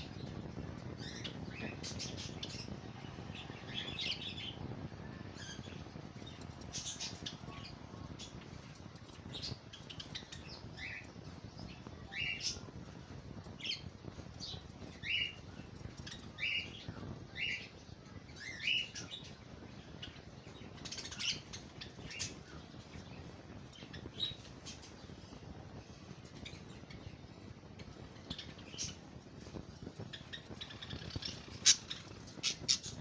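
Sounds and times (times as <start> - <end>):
steady low background hum: 0.0 - 33.0.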